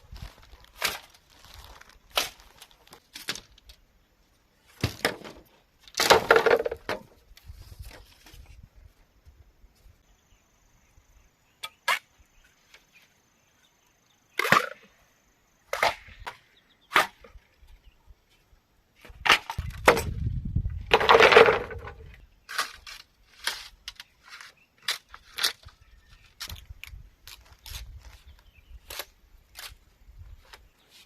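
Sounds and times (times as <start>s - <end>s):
bamboo knocking and cracking: 0.7s - 3.8s, 4.7s - 8.4s, 19.0s - 20.3s, 20.9s - 25.8s.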